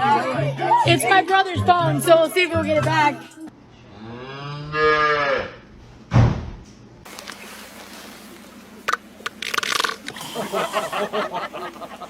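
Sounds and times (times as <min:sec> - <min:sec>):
loud thump: 0:06.1 - 0:06.7.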